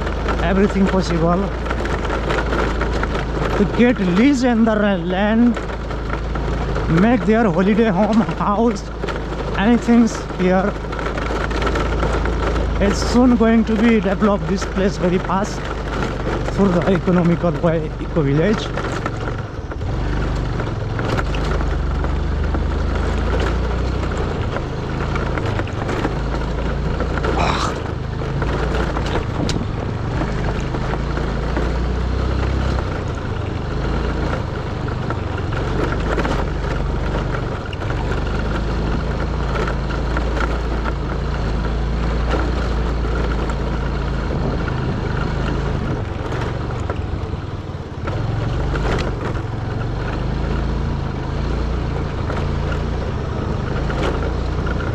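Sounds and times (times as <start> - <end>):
motorbike engine running: 0.0 - 54.9
wind rumble on microphone: 18.9 - 31.8, 32.6 - 50.7.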